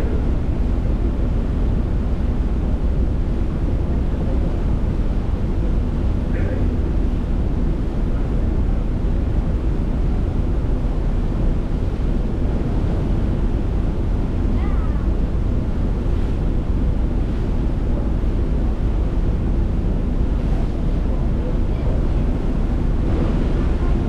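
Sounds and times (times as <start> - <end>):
rush of water: 0.0 - 24.0
wind rumbling on microphone: 0.0 - 24.0.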